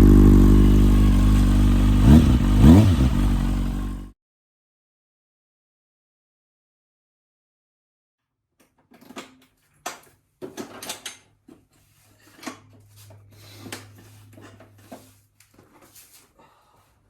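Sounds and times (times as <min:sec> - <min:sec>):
low hum: 0:00.0 - 0:04.1
hard objects knocking and clattering: 0:08.6 - 0:12.8.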